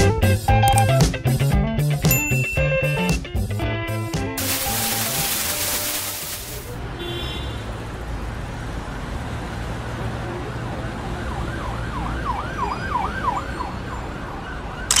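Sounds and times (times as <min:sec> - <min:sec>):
low traffic rumble: 0:06.4 - 0:14.9.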